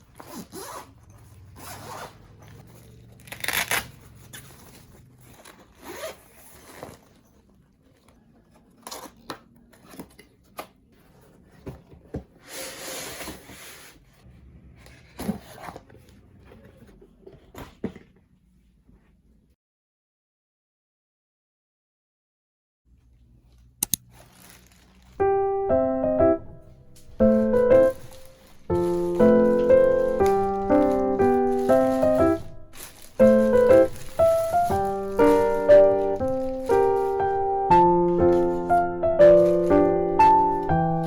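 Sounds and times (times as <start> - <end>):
packaging rubbing and tearing: 0.0 - 1.0, 1.6 - 7.2, 24.0 - 25.2, 27.0 - 41.0.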